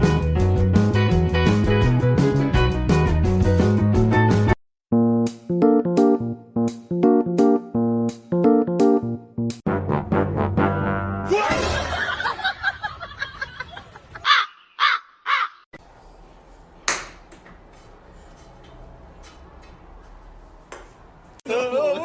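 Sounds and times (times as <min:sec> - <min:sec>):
music: 0:00.0 - 0:11.3
harsh animal calls: 0:14.2 - 0:15.7.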